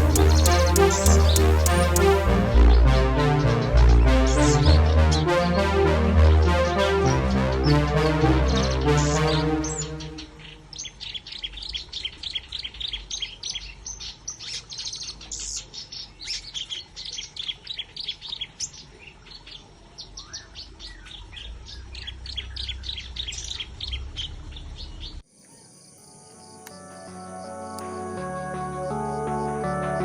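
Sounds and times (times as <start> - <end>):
small birds chirping: 0.0 - 2.3, 9.0 - 25.7
low rumble: 0.0 - 5.1.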